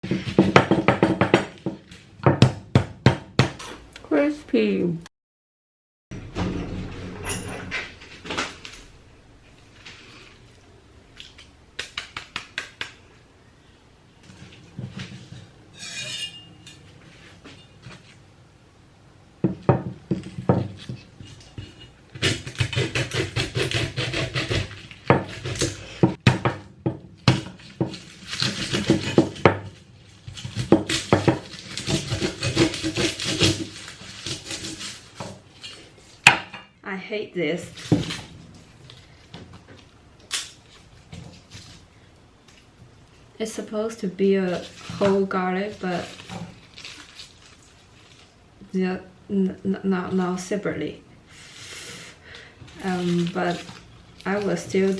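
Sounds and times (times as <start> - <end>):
kitchen utensils and dishes clattering: 6.4 - 8.6, 14.4 - 18.2.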